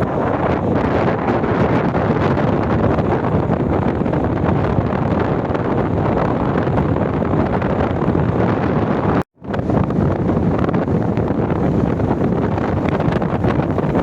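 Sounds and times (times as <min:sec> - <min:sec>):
storm wind battering microphone: 0:00.0 - 0:14.0
surf breaking on beach: 0:08.3 - 0:14.0.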